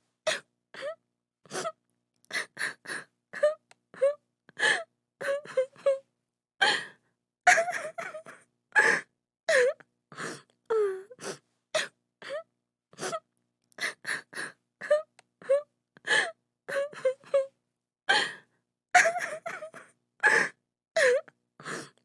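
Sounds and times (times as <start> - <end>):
woman sobbing: 3.4 - 6.0, 7.5 - 9.8, 14.8 - 17.5, 19.0 - 21.2.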